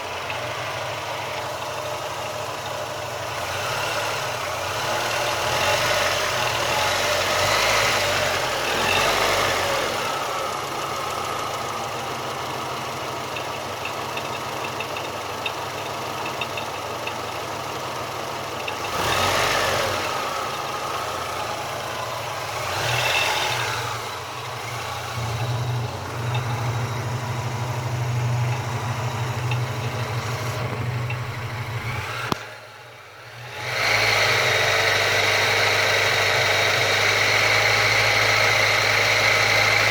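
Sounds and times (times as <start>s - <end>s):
engine idling with light knock: 10.0s - 33.1s.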